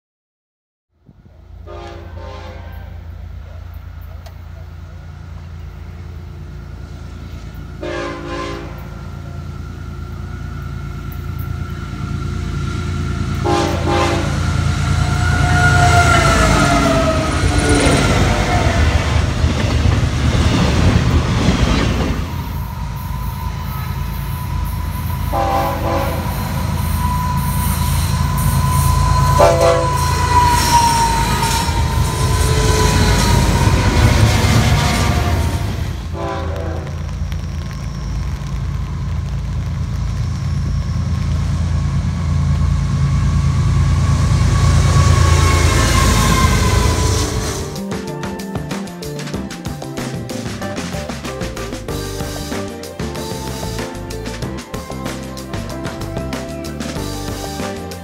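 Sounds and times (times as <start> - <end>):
train cars rumbling and clattering: 1.1 - 58.0
locomotive horn blasts: 1.6 - 3.3, 7.8 - 9.1, 13.3 - 19.5, 22.3 - 37.1, 44.4 - 48.2
high wheel squeal: 9.4 - 36.0, 42.8 - 58.0.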